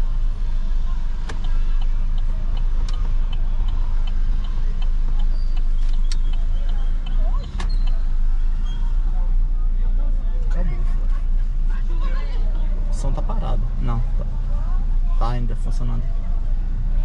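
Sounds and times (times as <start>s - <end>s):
car engine and road rumble: 0.0s - 17.0s
light regular ticking: 0.2s - 8.1s
sharp clicks: 1.2s - 8.0s.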